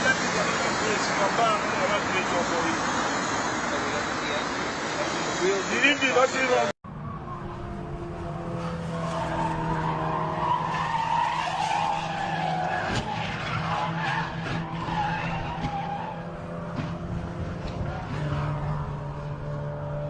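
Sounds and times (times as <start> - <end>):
tyres squealing in a skid: 9.0 - 16.4.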